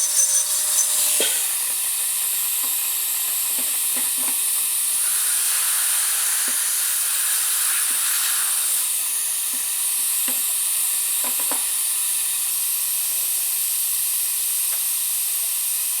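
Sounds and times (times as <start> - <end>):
dental air hiss: 0.0 - 1.8, 4.7 - 10.2.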